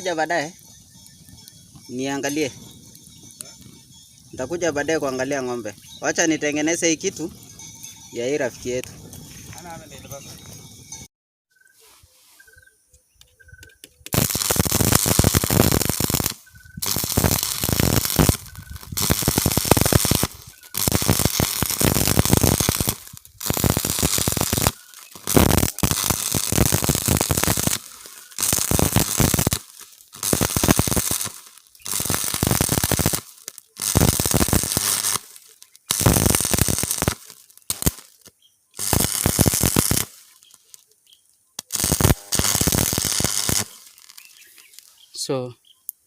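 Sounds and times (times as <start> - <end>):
arc welder crackling: 13.7 - 41.0, 41.6 - 44.9.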